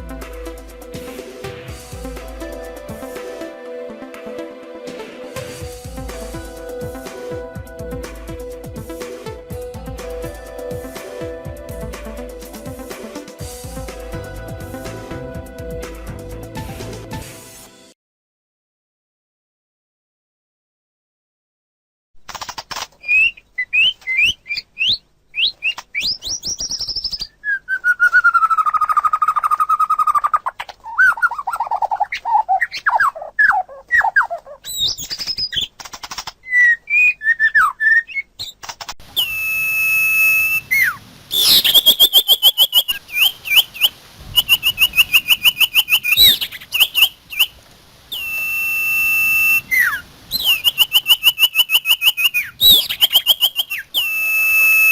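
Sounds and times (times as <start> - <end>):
birds singing: 40.5 - 54.2.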